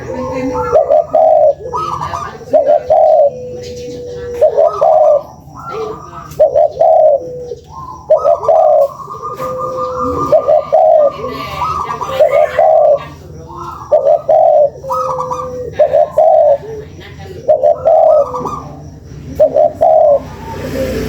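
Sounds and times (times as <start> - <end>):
dove cooing: 0.0 - 21.0.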